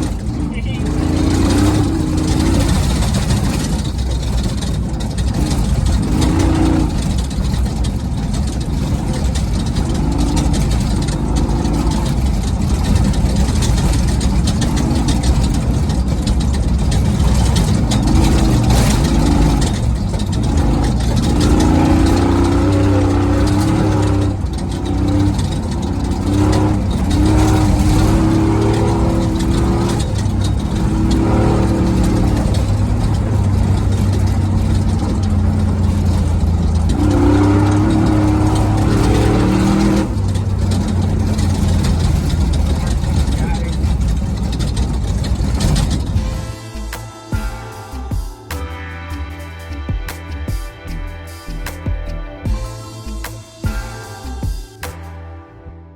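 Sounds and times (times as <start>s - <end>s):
wind and terrain noise: 0.0s - 47.2s
race truck engine running hard: 0.0s - 50.6s.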